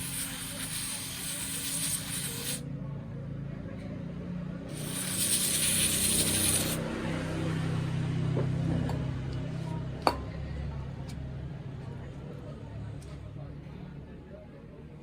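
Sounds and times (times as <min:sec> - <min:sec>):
pressurised spray hissing: 0:00.0 - 0:02.6, 0:04.7 - 0:06.8.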